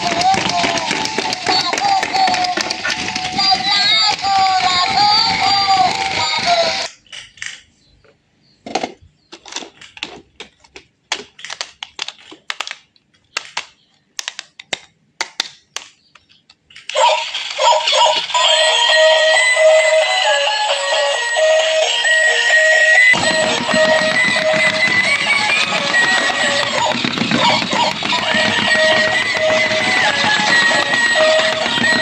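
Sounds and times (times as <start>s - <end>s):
music with singing: 0.0s - 6.9s.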